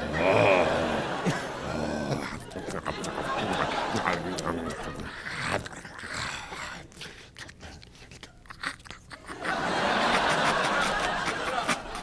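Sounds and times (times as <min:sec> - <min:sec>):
mouth crunching and chewing sounds: 0:02.2 - 0:09.4.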